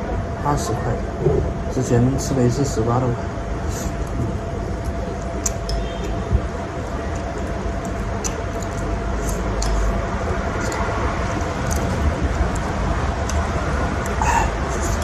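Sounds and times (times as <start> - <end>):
low rumble: 0.0 - 2.2
faint steady hum: 0.0 - 15.0.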